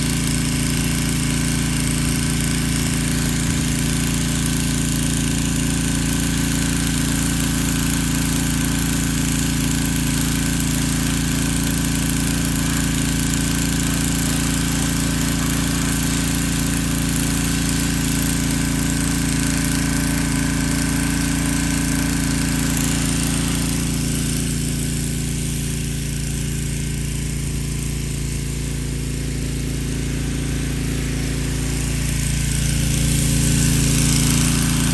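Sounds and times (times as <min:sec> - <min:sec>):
pressure washer engine hum: 0:00.0 - 0:34.9
water jet hissing: 0:10.4 - 0:26.1, 0:28.1 - 0:34.9.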